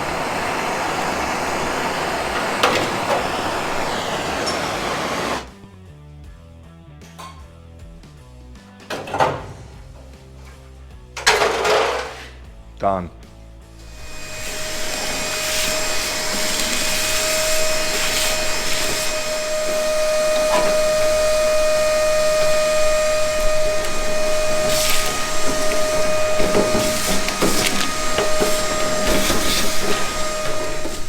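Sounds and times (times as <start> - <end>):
power grinder cutting steel: 0.0 - 5.5, 13.8 - 31.0
grinding disc scraping metal: 13.8 - 31.0.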